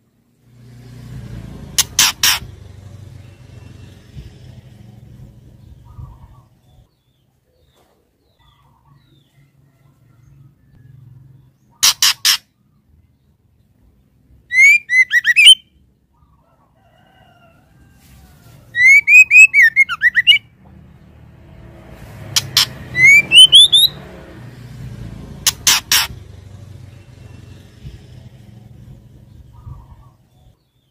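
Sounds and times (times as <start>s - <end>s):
bird calling with chattering notes: 1.6s - 9.4s, 11.5s - 12.9s, 14.4s - 16.4s, 18.7s - 20.5s, 22.3s - 24.1s, 25.3s - 30.9s.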